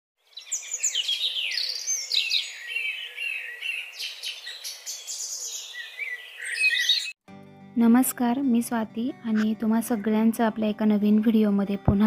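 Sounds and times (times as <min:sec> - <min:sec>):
small birds chirping and twittering: 0:00.2 - 0:07.2.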